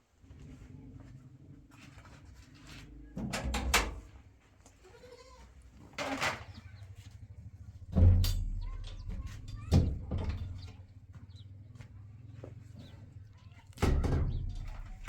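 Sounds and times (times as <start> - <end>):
livestock bleating: 4.8 - 5.6.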